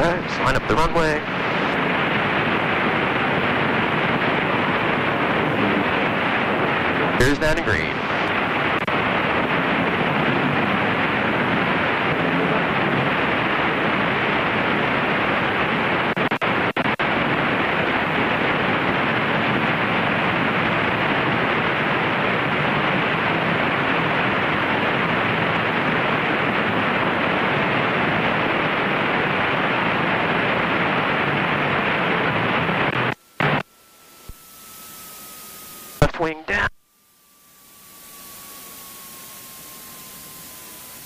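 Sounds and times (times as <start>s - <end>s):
aircraft cockpit engine noise: 0.0s - 41.0s.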